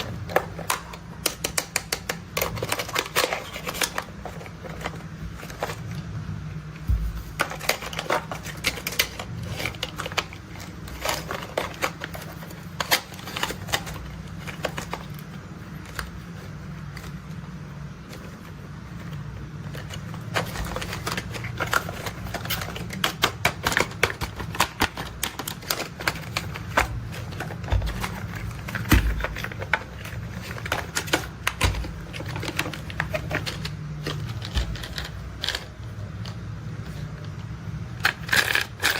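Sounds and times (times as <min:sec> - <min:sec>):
toy vehicles clicking and tapping: 0:00.0 - 0:05.7, 0:38.0 - 0:38.9
steady low hum: 0:02.1 - 0:38.9.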